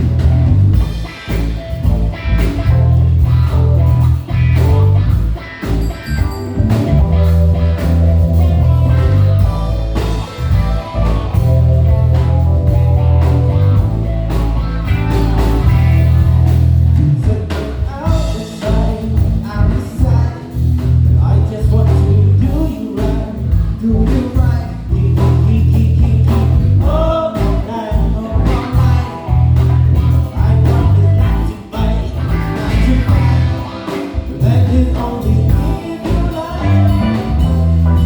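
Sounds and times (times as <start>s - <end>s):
guitar lines: 0.0s - 17.3s, 25.3s - 38.0s
drums: 0.0s - 38.0s
electric bass: 0.0s - 38.0s
keys: 5.6s - 6.9s.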